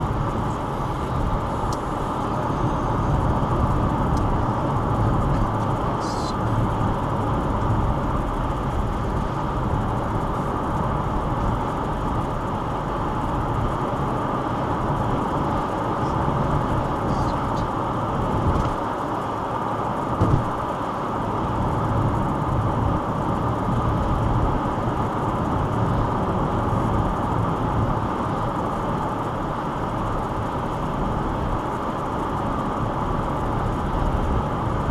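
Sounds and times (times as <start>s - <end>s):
car road noise on wet road: 0.0s - 34.9s.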